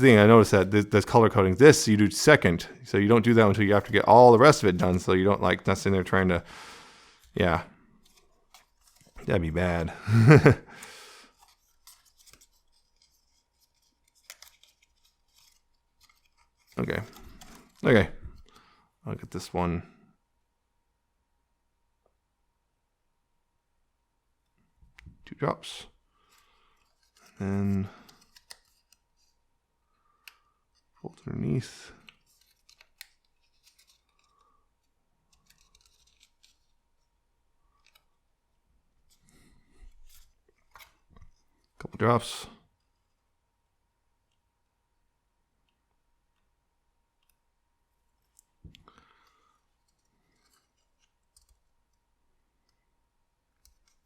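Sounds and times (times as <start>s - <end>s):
stiff paper being folded: 7.2s - 10.6s, 11.3s - 18.6s, 26.2s - 31.0s, 31.9s - 38.3s, 48.2s - 52.8s.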